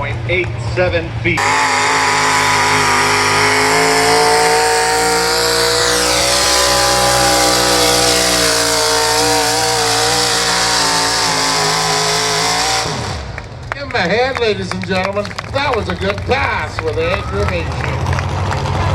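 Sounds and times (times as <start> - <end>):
tractor engine at full throttle: 0.0 - 18.9
high whistle sweeping down: 1.4 - 12.0.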